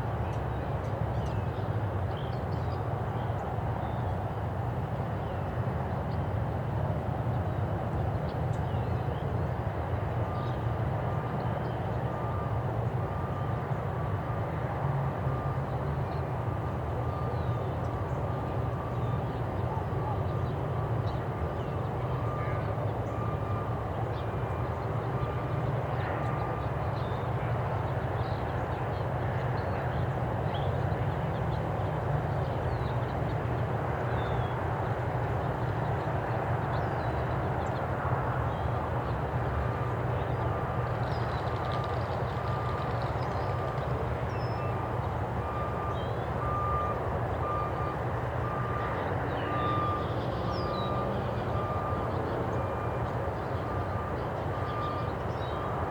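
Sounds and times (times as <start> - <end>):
traffic rumble: 12.0 - 55.9
reversing alarm beeping: 44.6 - 55.9.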